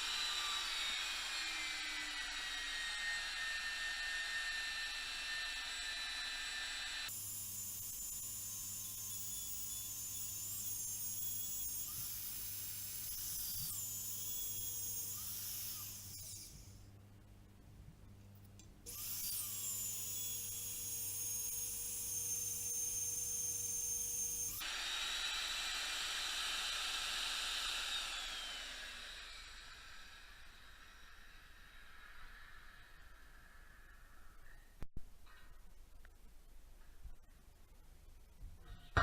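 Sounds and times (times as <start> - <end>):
high-pitched machine whine: 0.0 - 7.1.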